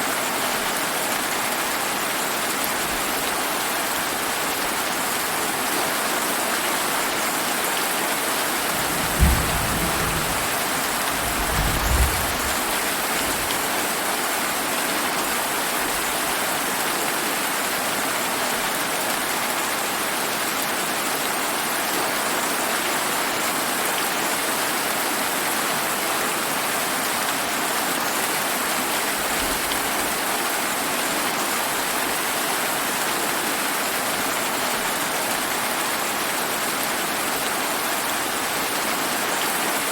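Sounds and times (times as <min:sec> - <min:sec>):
steady rainfall: 0:00.0 - 0:39.9
thunder: 0:08.5 - 0:13.5.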